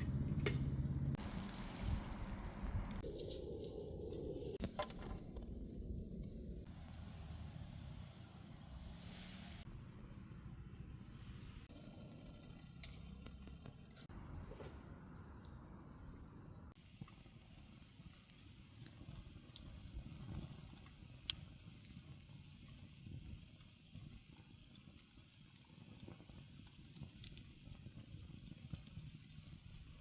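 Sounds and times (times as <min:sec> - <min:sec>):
wood fire crackling and popping: 0:00.0 - 0:06.9, 0:11.7 - 0:30.0
low wind-like rumble: 0:00.0 - 0:11.7.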